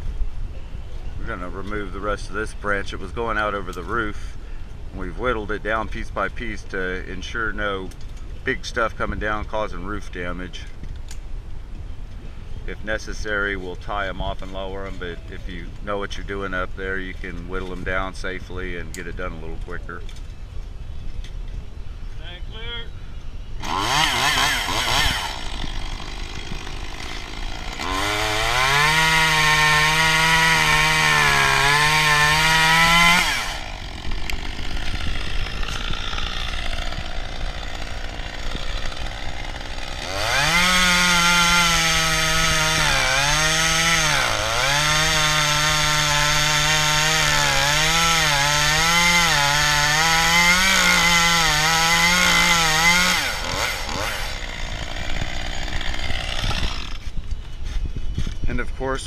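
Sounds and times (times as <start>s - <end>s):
chainsaw cutting branch: 23.6s - 58.4s.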